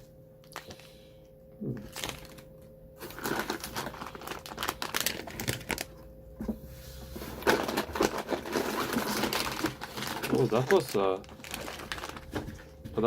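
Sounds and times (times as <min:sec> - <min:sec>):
plastic wrappers crinkling: 0:01.8 - 0:06.1, 0:07.2 - 0:13.0.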